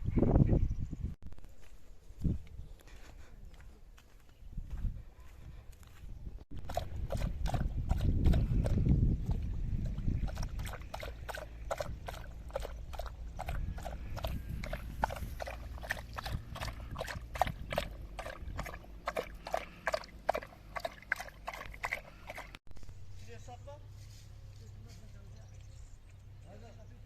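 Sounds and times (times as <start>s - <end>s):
hoofbeats clip-clopping on hard ground: 10.2s - 22.6s.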